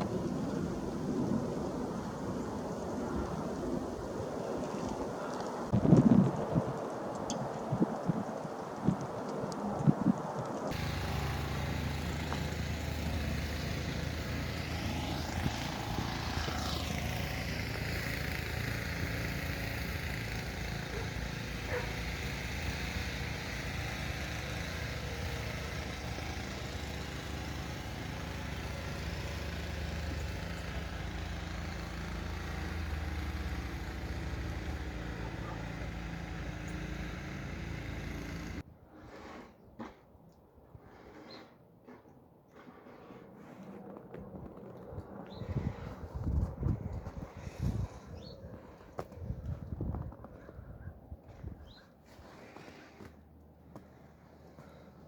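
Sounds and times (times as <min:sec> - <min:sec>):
motor engine humming: 0:09.8 - 0:38.6.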